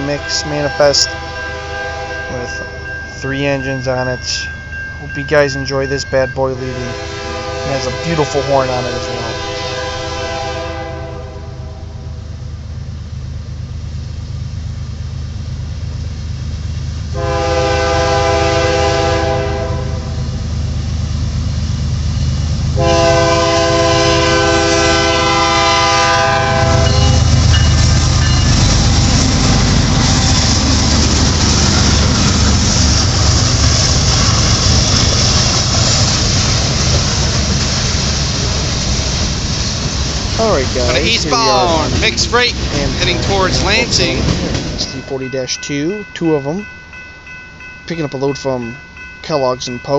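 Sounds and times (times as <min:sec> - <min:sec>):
locomotive horn blasts: 0:00.0 - 0:02.8, 0:06.7 - 0:12.2, 0:17.1 - 0:20.2, 0:22.8 - 0:27.4
diesel locomotive rumble: 0:00.0 - 0:49.9
freight cars clattering: 0:26.8 - 0:46.6.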